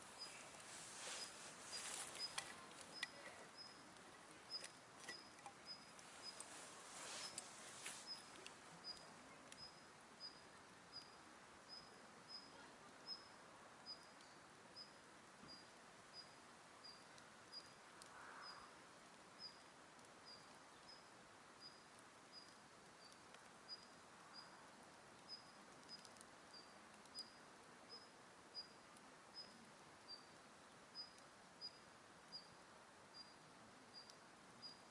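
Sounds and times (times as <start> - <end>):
campfire crackling: 0.0 - 12.1, 21.8 - 32.3
faint outdoor hiss: 0.0 - 34.9.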